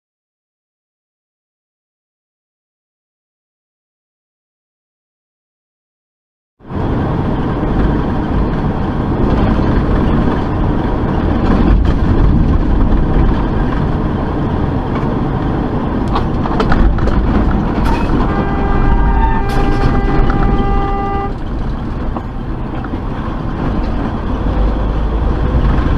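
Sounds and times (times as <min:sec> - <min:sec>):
vehicle road and engine noise: 0:06.6 - 0:25.9.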